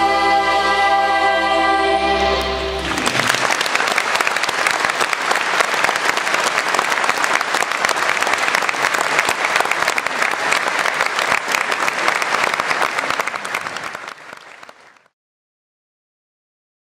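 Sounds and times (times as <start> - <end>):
audience applauding: 2.3 - 15.2.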